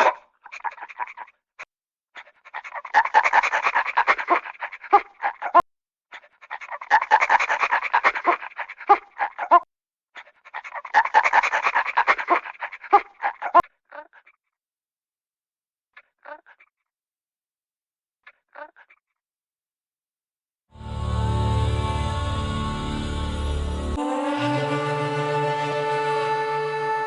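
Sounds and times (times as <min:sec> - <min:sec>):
dog panting rapidly: 0:02.2 - 0:09.6, 0:10.2 - 0:13.6.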